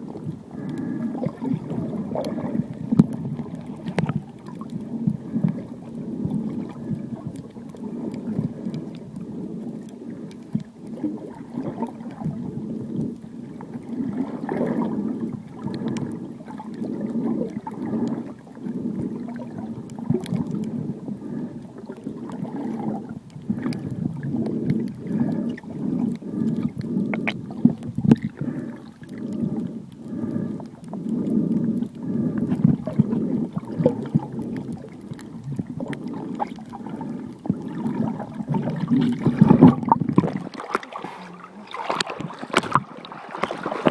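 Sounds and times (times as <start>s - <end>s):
underwater water bubbling: 0.0s - 43.9s
faint clicks: 0.1s - 0.9s, 2.2s - 5.6s, 6.6s - 11.0s, 15.6s - 20.8s, 22.7s - 37.7s.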